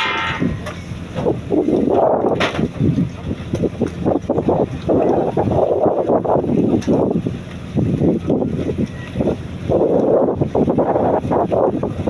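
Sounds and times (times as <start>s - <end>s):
sharp bump: 0.0s - 0.9s
fishing boat engine running: 0.0s - 12.0s
wind buffeting microphone: 0.0s - 12.0s.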